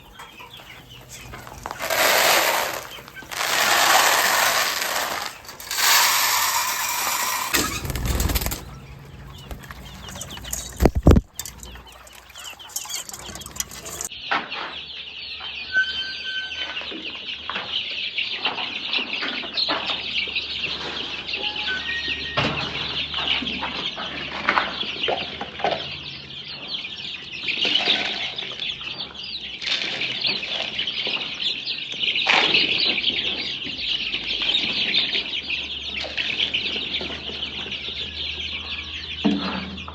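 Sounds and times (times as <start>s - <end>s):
poultry clucking: 0.0s - 14.1s
chicks peeping: 0.0s - 15.7s, 22.6s - 39.9s.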